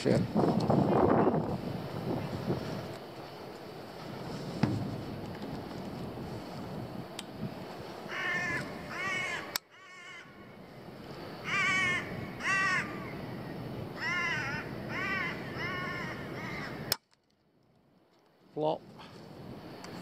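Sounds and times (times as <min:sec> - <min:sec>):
outdoor hiss: 0:00.0 - 0:17.0
large bird harsh calls: 0:08.1 - 0:10.7, 0:11.4 - 0:16.9
sharp clicks: 0:16.9 - 0:17.4.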